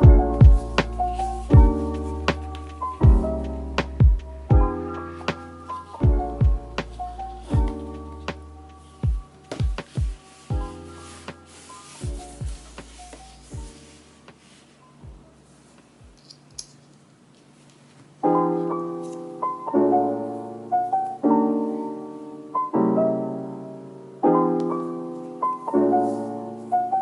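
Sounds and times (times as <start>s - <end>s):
slow piano piece: 0.0s - 16.2s, 17.5s - 27.0s.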